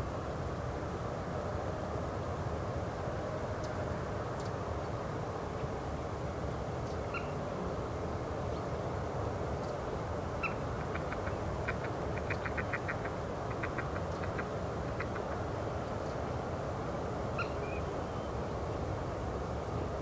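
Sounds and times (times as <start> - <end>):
wild birds calling: 7.1 - 7.4, 10.4 - 16.1, 17.3 - 18.3.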